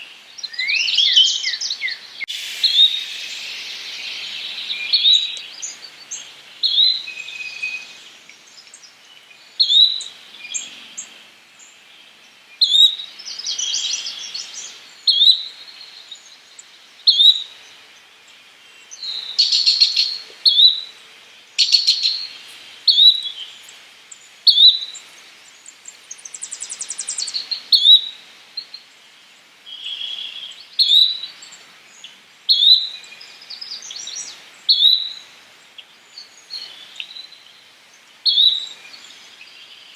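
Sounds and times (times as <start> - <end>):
bird short sharp calls: 2.3 - 5.5
buzzy rattling bird trills: 2.3 - 5.8.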